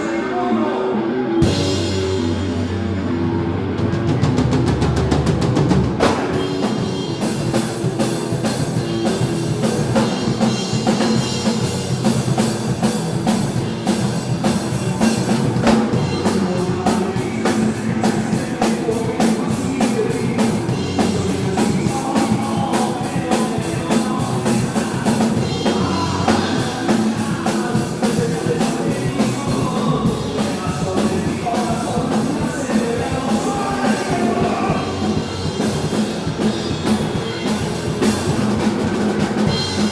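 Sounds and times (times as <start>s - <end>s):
live rock band playing: 0.0s - 39.9s
drum kit: 1.3s - 39.9s
person singing: 14.4s - 36.4s.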